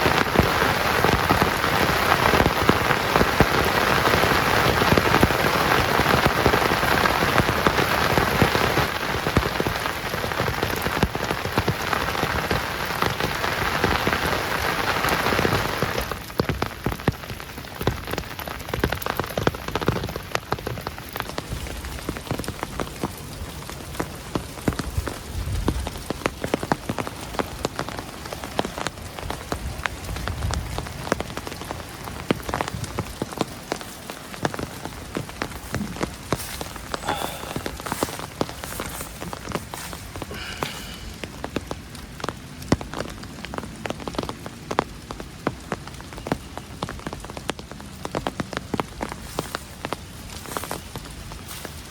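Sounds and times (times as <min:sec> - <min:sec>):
rain falling on a tent: 0:00.0 - 0:51.9
raindrops tapping: 0:00.0 - 0:51.9.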